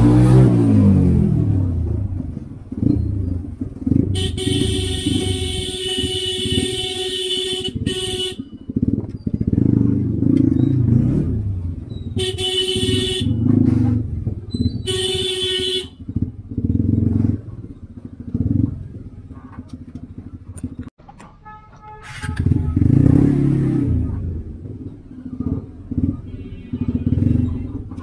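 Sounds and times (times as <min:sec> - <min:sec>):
motorcycle engine running: 0:00.0 - 0:20.9, 0:22.1 - 0:28.0
vehicle horn honking: 0:04.0 - 0:08.6, 0:12.1 - 0:13.6, 0:14.8 - 0:16.1, 0:21.3 - 0:23.0, 0:26.0 - 0:28.0.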